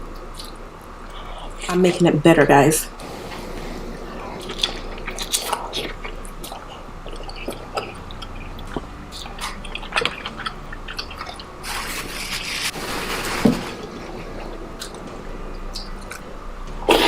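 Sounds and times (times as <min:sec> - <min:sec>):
wet chewing: 0:00.2 - 0:01.2, 0:04.0 - 0:12.7, 0:13.6 - 0:17.0
lip smacks: 0:04.4 - 0:11.5, 0:15.6 - 0:16.3
wet squelching: 0:04.4 - 0:15.0.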